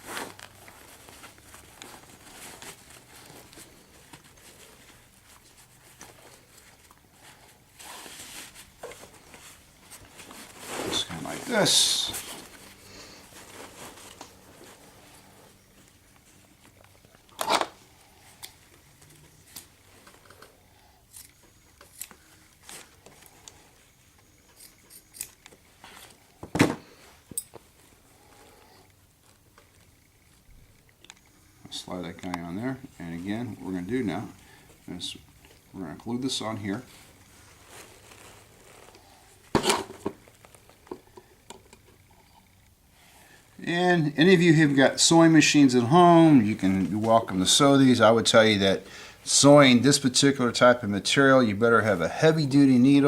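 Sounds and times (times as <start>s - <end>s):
nylon straps rustling: 0.0s - 20.5s, 27.0s - 39.6s.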